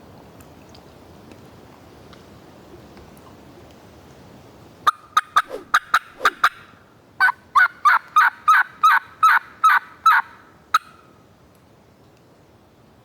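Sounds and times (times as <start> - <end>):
turkey call cutts and yelps: 4.9 - 11.1.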